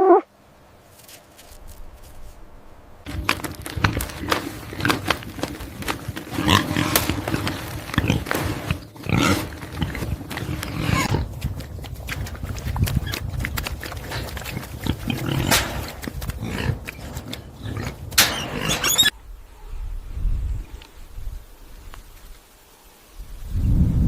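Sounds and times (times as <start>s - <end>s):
animal calls: 0.0s - 0.3s, 3.1s - 19.9s.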